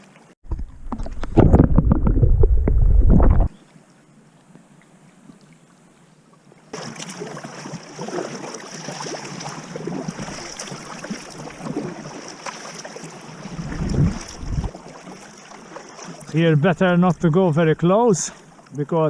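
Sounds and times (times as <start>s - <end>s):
water splashing around a kayak: 0.0s - 19.0s
small clicks and splashes: 6.7s - 13.2s.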